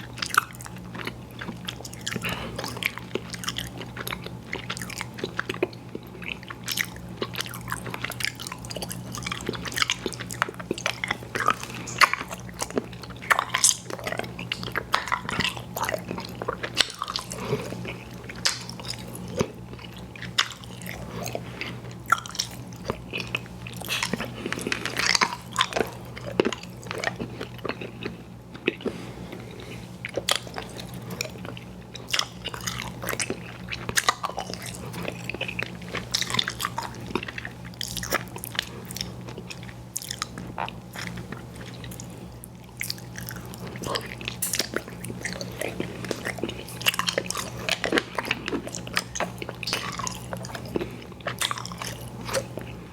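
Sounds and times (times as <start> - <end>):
wet chewing mouth sounds: 0.0 - 52.9.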